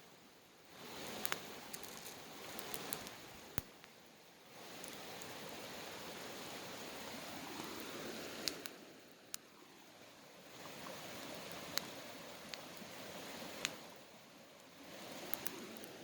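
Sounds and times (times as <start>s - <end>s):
campfire rushing hiss: 0.0s - 16.0s
campfire pops: 0.9s - 4.0s, 7.6s - 9.5s, 10.6s - 13.9s, 14.6s - 16.0s.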